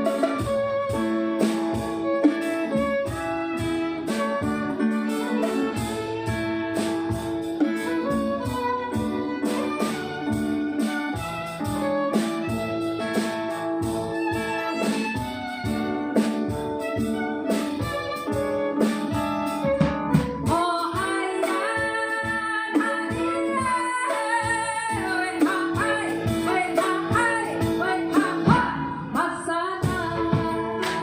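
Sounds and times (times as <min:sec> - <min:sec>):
live band with guitar: 0:00.0 - 0:31.0
woman singing: 0:20.4 - 0:31.0.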